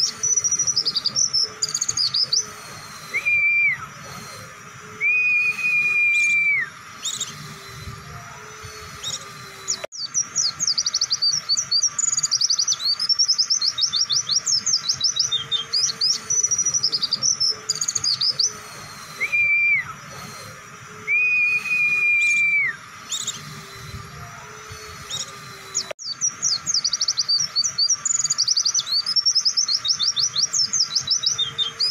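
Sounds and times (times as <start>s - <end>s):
bird flat whistles: 0.0s - 7.9s, 8.7s - 24.0s
bird twittering song: 0.0s - 31.9s.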